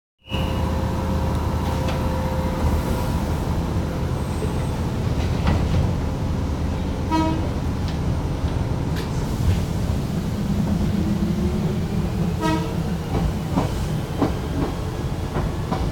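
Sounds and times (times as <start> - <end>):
train wheels rumbling on rail: 0.3 - 15.9
train horn toot: 7.1 - 7.6, 12.4 - 12.9.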